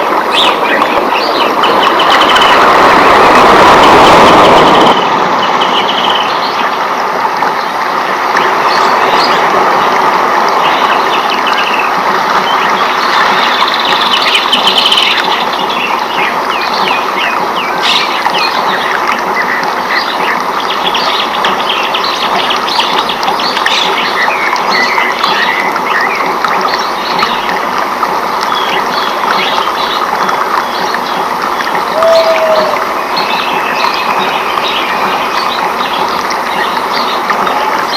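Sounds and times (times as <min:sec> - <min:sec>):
water noise: 0:00.0 - 0:37.9
birds chirping and trilling: 0:00.1 - 0:02.8, 0:10.6 - 0:27.5, 0:30.6 - 0:37.9.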